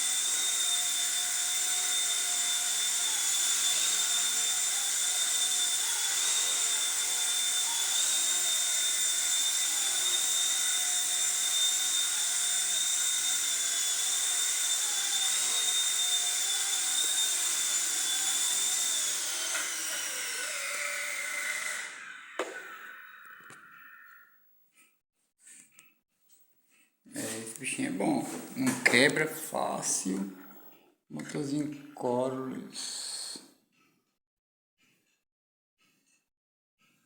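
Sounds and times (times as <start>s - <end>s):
rc helicopter rotors whining: 0.0s - 24.3s.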